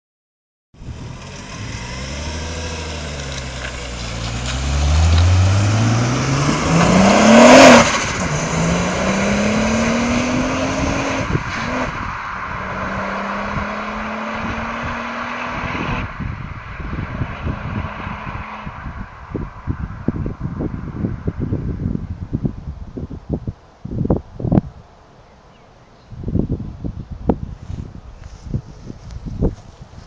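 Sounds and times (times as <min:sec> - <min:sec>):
car engine accelerating past: 0:00.8 - 0:19.3.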